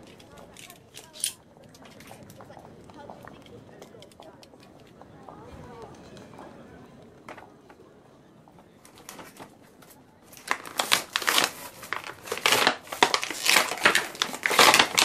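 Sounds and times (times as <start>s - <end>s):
plastic packaging crinkling: 8.8s - 15.0s.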